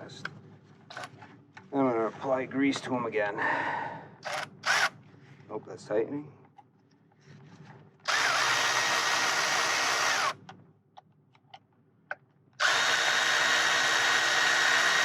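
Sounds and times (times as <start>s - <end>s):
power drill whining: 0.9s - 1.1s, 4.2s - 5.0s, 8.0s - 10.4s, 12.6s - 15.0s.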